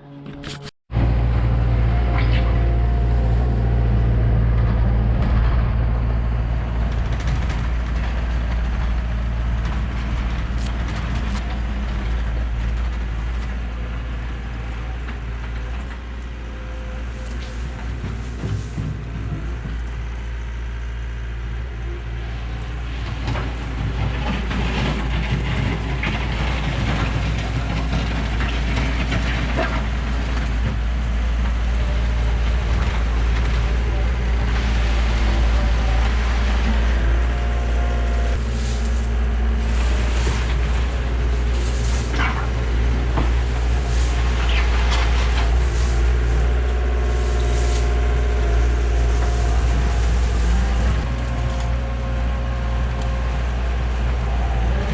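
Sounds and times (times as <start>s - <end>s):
excavator diesel engine running: 0.0s - 54.9s
bucket scraping and knocking ground: 17.0s - 20.1s, 23.1s - 51.8s.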